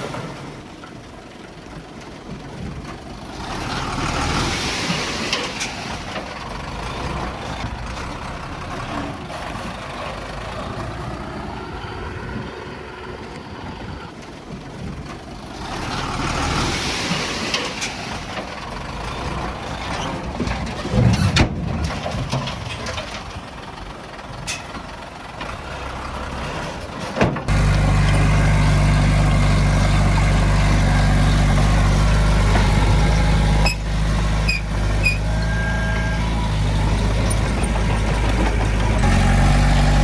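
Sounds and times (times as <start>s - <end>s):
earthmoving machinery engine: 0.1s - 40.0s.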